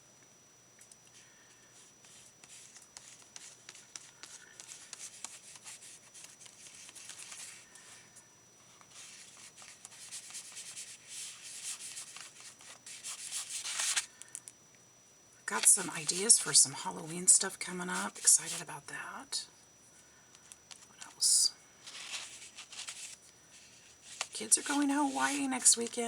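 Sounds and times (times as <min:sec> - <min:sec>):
paper rustling: 0:02.0 - 0:08.0, 0:08.7 - 0:14.2, 0:21.8 - 0:26.0
brush swishing on paper: 0:21.9 - 0:26.0.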